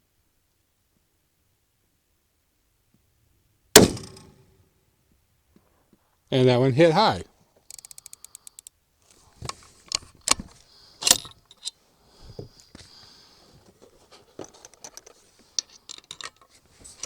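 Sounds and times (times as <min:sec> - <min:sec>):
metallic clicks of rifle bolt: 0:07.7 - 0:08.8, 0:11.0 - 0:11.8.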